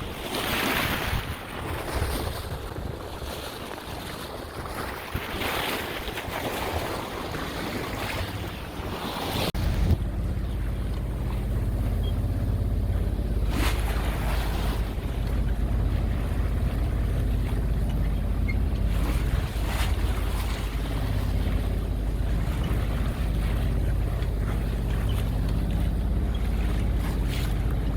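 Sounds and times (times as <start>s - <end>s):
water rushing along hull: 0.0s - 27.9s
wind: 0.0s - 27.9s
boat diesel engine droning: 5.4s - 27.9s.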